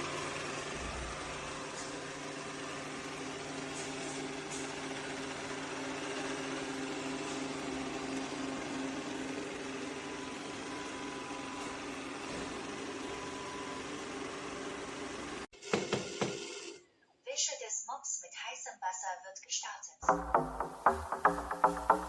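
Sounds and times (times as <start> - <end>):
robot vacuum motor hum: 0.0 - 15.4.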